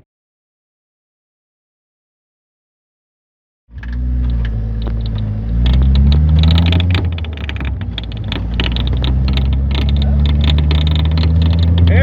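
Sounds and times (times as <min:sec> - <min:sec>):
car engine accelerating: 0:03.7 - 0:12.0
road rumble: 0:03.7 - 0:12.0
knocks and rattles: 0:03.8 - 0:12.0.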